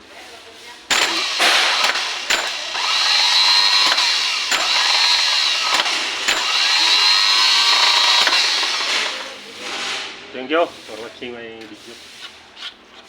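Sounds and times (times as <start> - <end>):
starter motor whining: 0.9 - 9.4.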